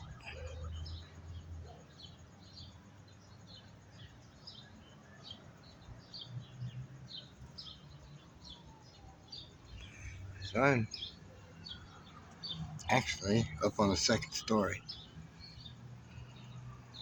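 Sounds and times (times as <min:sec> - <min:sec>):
small bird chirping: 0:00.0 - 0:17.0.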